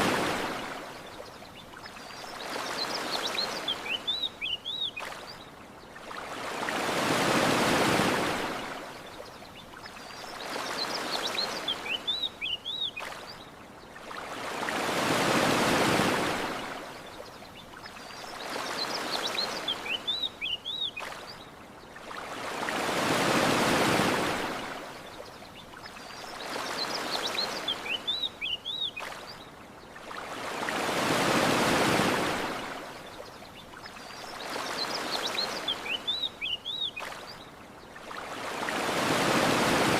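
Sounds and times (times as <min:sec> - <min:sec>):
ocean surf washing onto shore: 0:00.0 - 0:01.0, 0:06.1 - 0:08.9, 0:14.2 - 0:16.9, 0:22.2 - 0:24.9, 0:30.1 - 0:33.0, 0:38.1 - 0:39.9
small birds chirping: 0:01.0 - 0:06.6, 0:09.0 - 0:14.6, 0:17.0 - 0:22.6, 0:25.0 - 0:30.6, 0:33.0 - 0:38.6.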